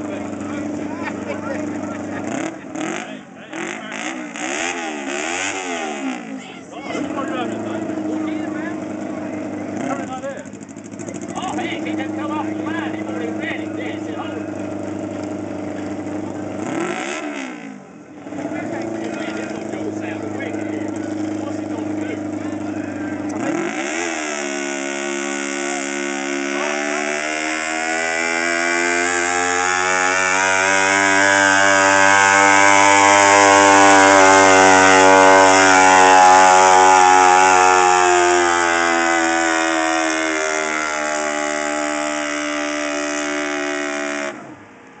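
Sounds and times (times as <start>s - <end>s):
tractor engine at full throttle: 0.0s - 45.0s.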